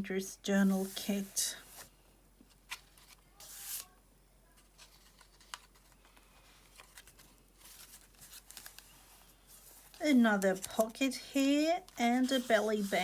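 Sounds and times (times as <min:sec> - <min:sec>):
pages turning: 0:02.7 - 0:03.9, 0:04.8 - 0:11.0, 0:11.8 - 0:13.0
paper rustling: 0:02.7 - 0:03.9, 0:04.6 - 0:13.0.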